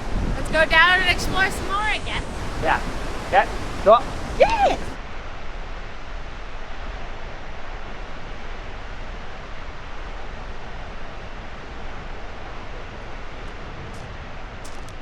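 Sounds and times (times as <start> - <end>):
waterfall roaring: 0.0 - 5.0
wind buffeting microphone: 0.0 - 5.0.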